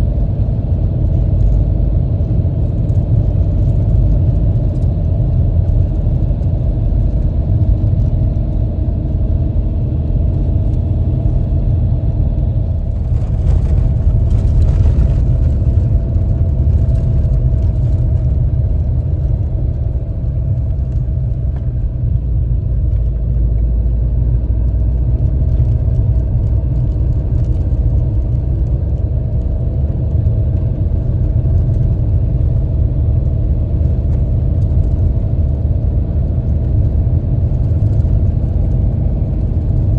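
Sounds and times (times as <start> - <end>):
vehicle engine low rumble: 0.0 - 39.9.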